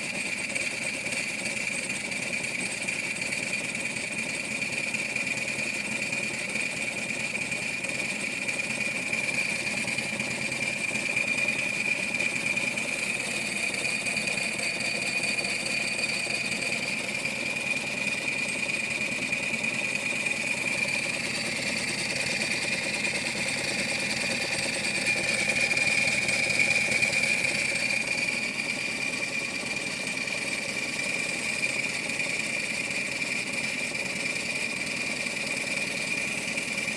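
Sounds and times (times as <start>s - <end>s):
rapid mechanical knocking: 0.0s - 36.9s.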